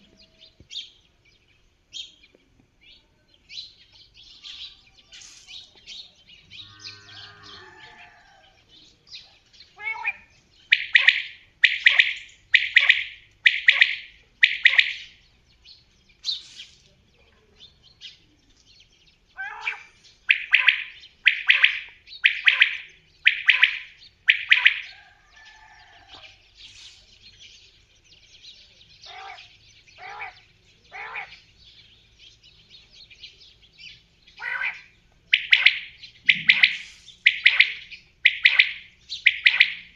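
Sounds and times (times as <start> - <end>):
quail calling rasping notes: 9.8 - 15.2, 19.4 - 26.3, 34.4 - 39.9.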